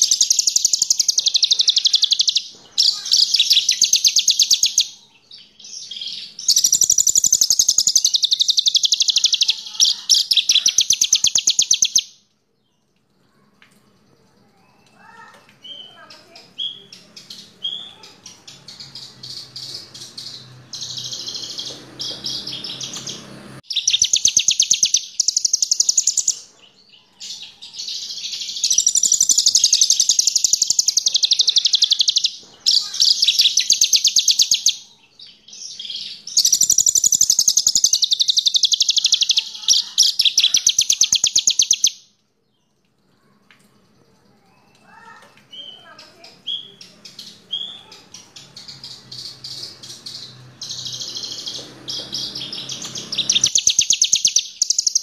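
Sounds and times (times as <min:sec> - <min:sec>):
lark singing fast trills: 0:00.0 - 0:04.9, 0:06.4 - 0:12.1, 0:19.6 - 0:26.5, 0:28.6 - 0:34.8, 0:36.3 - 0:42.0, 0:50.2 - 0:55.0.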